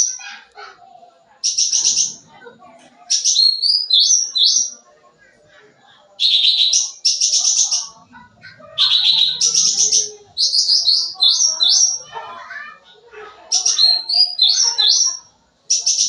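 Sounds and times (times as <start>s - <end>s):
songbird chattering song: 1.4s - 2.3s, 3.0s - 4.8s, 6.2s - 12.2s, 13.4s - 16.0s.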